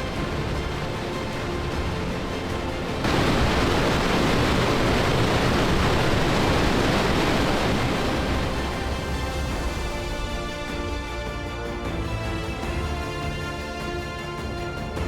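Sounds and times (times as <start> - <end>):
waterfall roaring: 0.0 - 9.3
faint music: 0.0 - 15.0.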